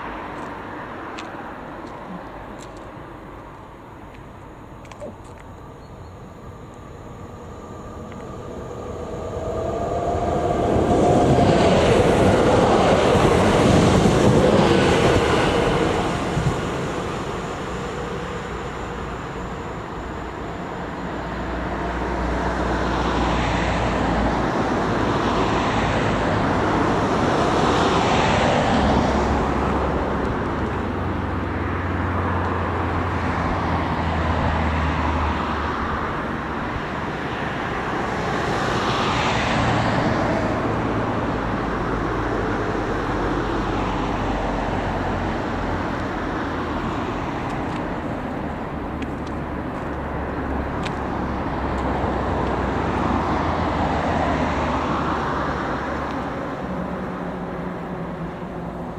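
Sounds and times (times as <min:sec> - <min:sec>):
cars passing: 0:00.0 - 0:58.9.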